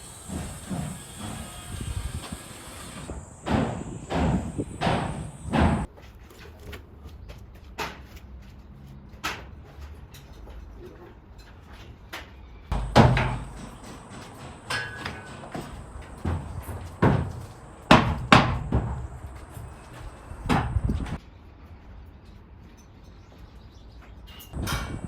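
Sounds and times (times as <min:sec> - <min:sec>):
knocks and bangs: 0:00.0 - 0:05.9, 0:12.7 - 0:19.7, 0:20.4 - 0:21.2.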